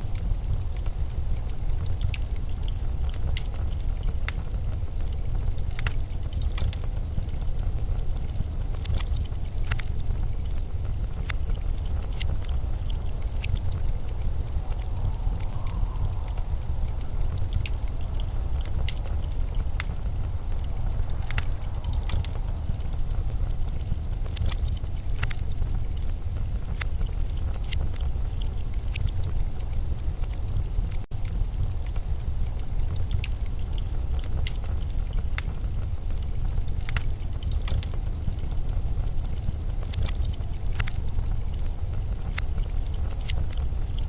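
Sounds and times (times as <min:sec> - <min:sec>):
blizzard wind rumbling: 0:00.0 - 0:44.0
sharp ticks and crackles: 0:00.0 - 0:44.0.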